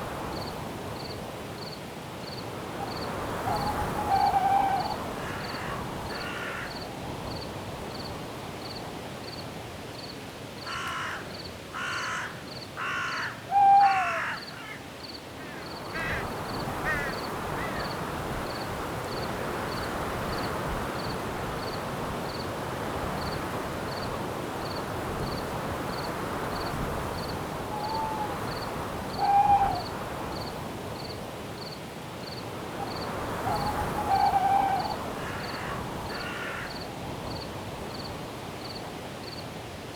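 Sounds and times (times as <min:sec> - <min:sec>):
cricket chirping: 0:00.3 - 0:09.4, 0:23.2 - 0:39.4
falling hoot: 0:03.4 - 0:05.8, 0:13.1 - 0:14.4, 0:27.7 - 0:28.5, 0:29.2 - 0:29.9, 0:33.4 - 0:36.7
harsh caws: 0:03.5 - 0:06.8, 0:10.7 - 0:17.9, 0:33.4 - 0:36.8
wind hiss: 0:14.1 - 0:39.9.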